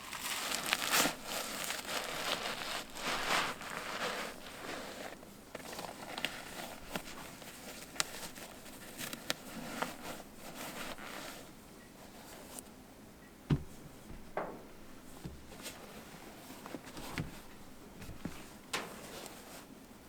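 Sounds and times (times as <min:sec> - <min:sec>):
packaging rustling: 0:00.0 - 0:11.0
dull thud of object set down: 0:13.5 - 0:15.8, 0:16.8 - 0:18.9.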